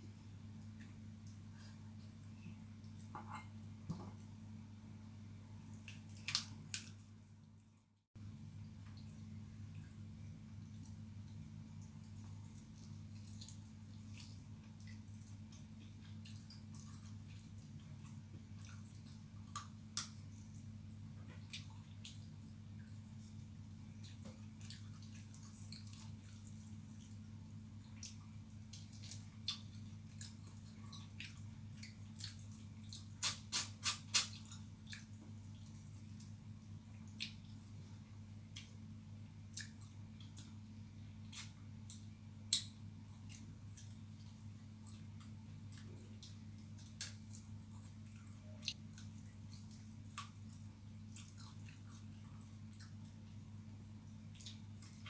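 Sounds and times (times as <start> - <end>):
low electrical hum: 0.0 - 55.0
person chewing and lip smacking: 27.9 - 36.3, 36.9 - 37.7, 39.5 - 40.6, 41.2 - 53.4, 54.2 - 55.0
person chewing with mouth clicks: 39.5 - 40.6, 44.8 - 53.2, 54.3 - 55.0.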